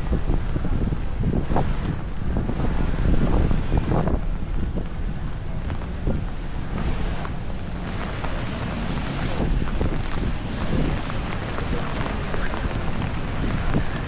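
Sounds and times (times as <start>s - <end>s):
wind gusts on microphone: 0.0s - 14.0s
heavy rain falling: 5.2s - 14.0s.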